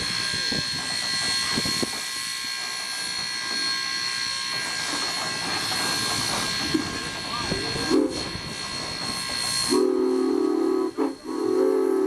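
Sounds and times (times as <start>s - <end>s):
steam hissing: 0.0s - 12.0s.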